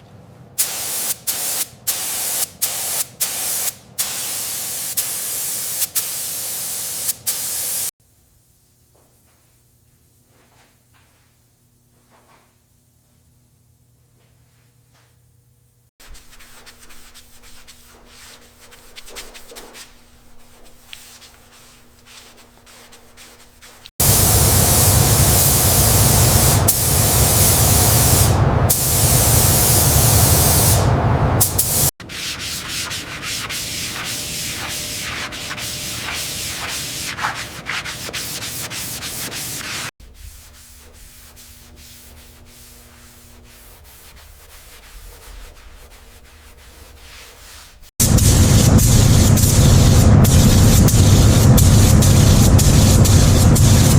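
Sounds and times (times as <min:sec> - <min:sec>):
scratchy rubbing: 0:16.0 - 0:24.0, 0:32.0 - 0:47.9
loud even sanding: 0:22.2 - 0:53.9
quick scraping strokes: 0:31.4 - 0:47.9.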